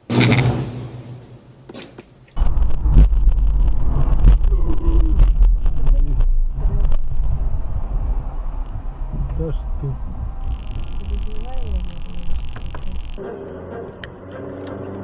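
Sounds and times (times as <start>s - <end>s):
vehicle engine and road noise: 0.0s - 15.0s
wind buffeting: 2.4s - 13.2s.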